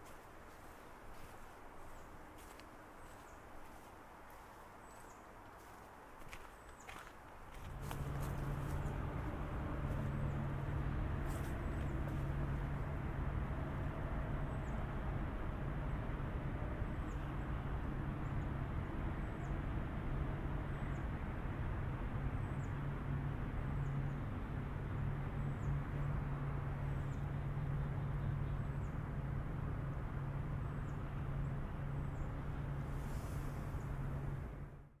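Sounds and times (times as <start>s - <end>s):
outdoor background rumble: 0.0s - 35.0s
low hum: 7.5s - 35.0s.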